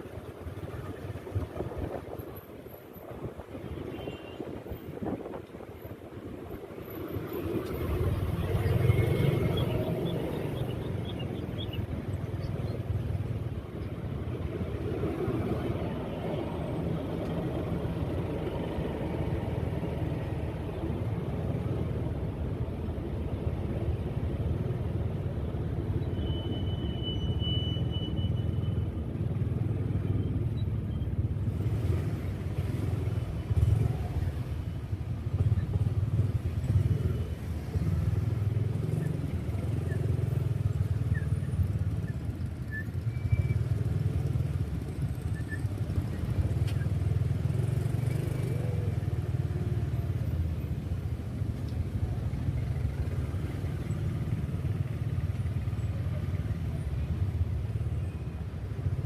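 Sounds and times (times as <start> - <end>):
road noise: 0.0 - 59.0.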